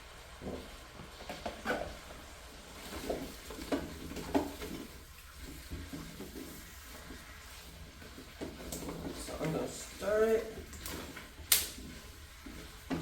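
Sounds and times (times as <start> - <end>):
sugar mixture sizzling: 0.0 - 13.0.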